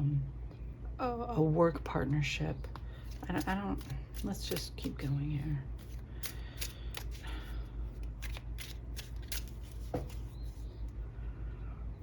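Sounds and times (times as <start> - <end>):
steady low hum: 0.0 - 12.0
cards flicking and snapping: 5.8 - 10.6.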